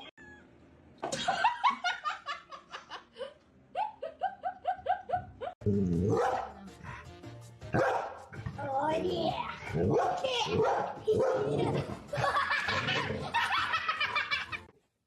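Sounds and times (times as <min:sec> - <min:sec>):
dog barking and yipping: 0:06.1 - 0:06.6, 0:07.7 - 0:08.2, 0:09.8 - 0:11.6.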